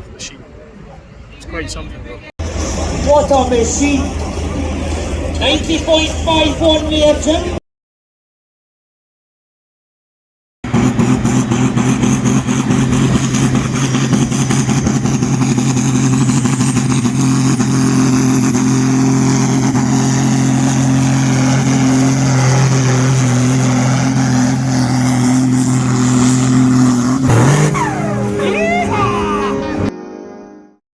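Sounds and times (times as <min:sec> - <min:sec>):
loud tractor engine running: 0:02.4 - 0:07.6, 0:10.7 - 0:29.9.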